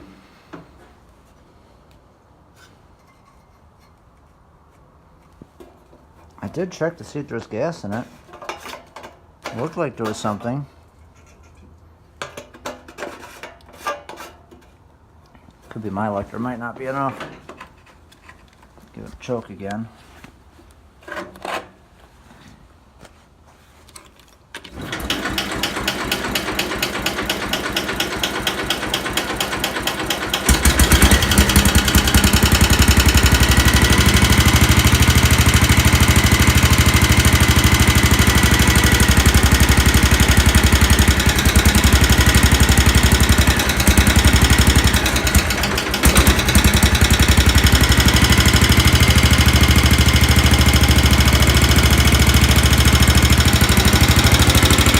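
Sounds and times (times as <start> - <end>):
engine cranking: 24.6 - 54.9
tractor engine running: 24.6 - 54.9.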